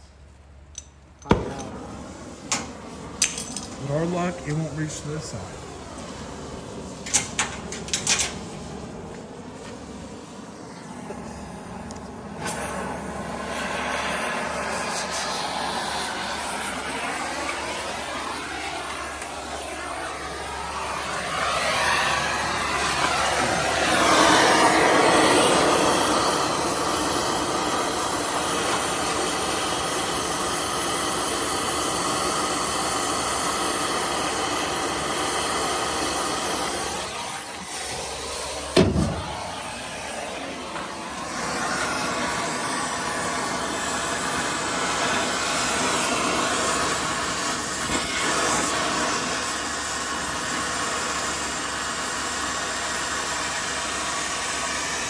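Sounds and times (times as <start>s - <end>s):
loud thump: 1.2s - 2.1s, 38.7s - 39.7s
cutting torch hissing: 1.3s - 55.0s.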